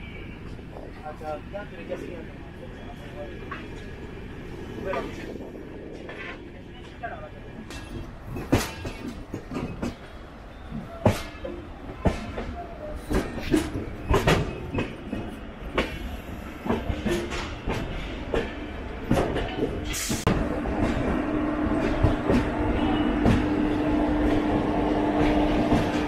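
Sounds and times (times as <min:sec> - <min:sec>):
train rumble: 0:00.0 - 0:26.0
train wheels knocking on rails: 0:10.7 - 0:16.0, 0:16.6 - 0:26.0.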